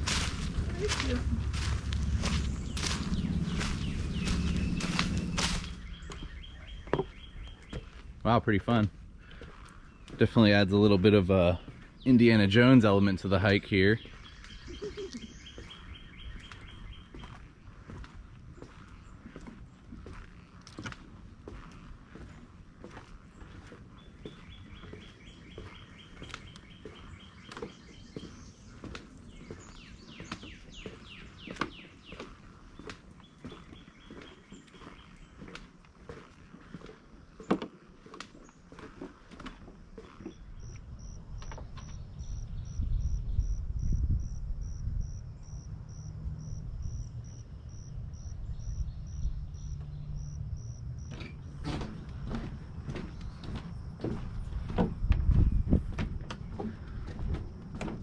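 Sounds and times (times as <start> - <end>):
low rumble: 0.0 - 6.9
footsteps knocking: 0.0 - 8.0, 51.5 - 58.0
songbird singing: 0.0 - 58.0
cricket chirping: 40.0 - 54.6.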